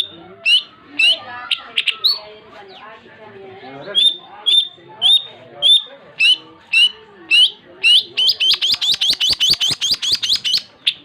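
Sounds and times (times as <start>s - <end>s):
bird singing whistled notes: 3.8s - 11.0s.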